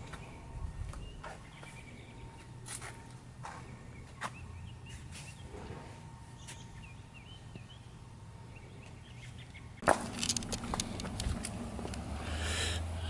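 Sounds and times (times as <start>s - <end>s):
small birds chirping: 0.0s - 9.9s
low steady hum: 0.0s - 13.0s.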